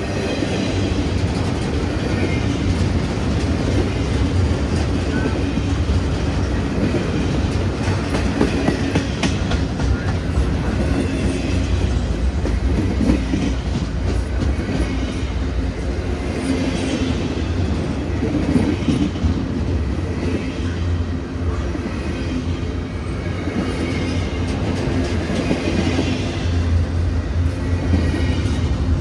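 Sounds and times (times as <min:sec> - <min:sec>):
freight train wheels rumbling: 0:00.0 - 0:29.0
wheels clicking over rail joints: 0:00.3 - 0:15.0.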